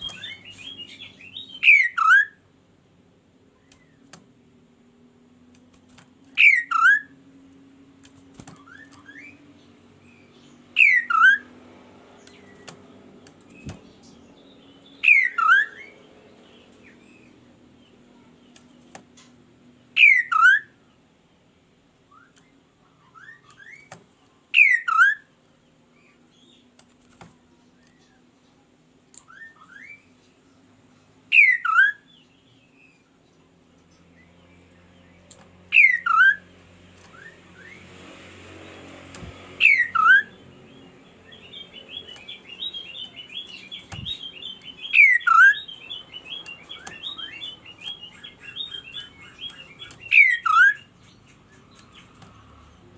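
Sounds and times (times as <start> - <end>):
faint low hum: 0.0 - 52.9.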